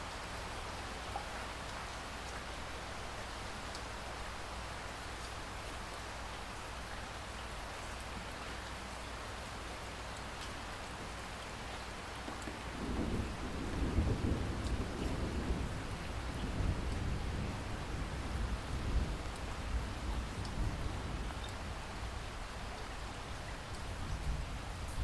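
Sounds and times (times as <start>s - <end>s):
steady rain falling: 0.0s - 25.0s
distant thunder rumble: 12.3s - 21.4s.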